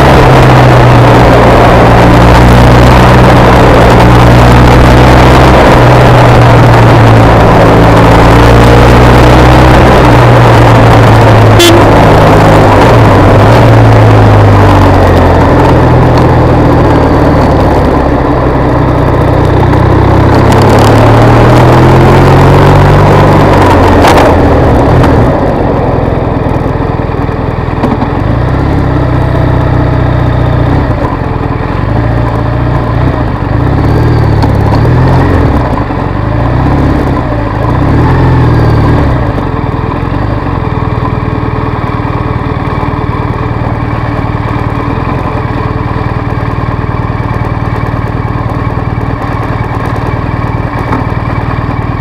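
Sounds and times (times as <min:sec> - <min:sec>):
motorcycle engine: 0:00.0 - 0:52.0.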